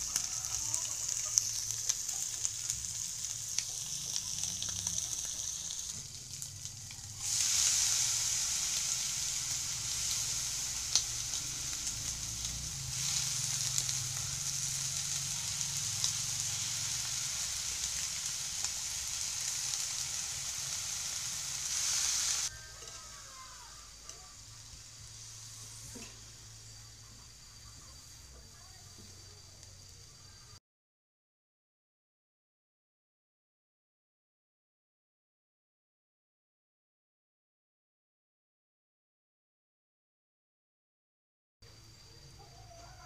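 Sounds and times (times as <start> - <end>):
cabbage sizzling in a wok: 0.0 - 30.6, 41.8 - 43.0.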